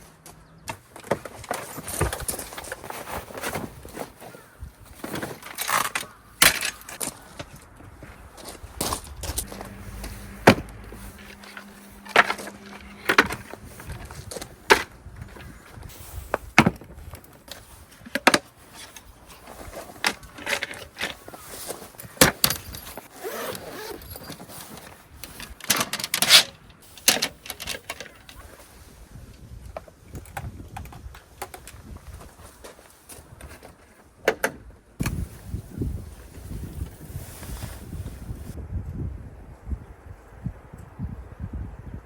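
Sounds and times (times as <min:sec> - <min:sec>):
objects clicking and clattering: 0:08.4 - 0:15.8, 0:23.9 - 0:28.7.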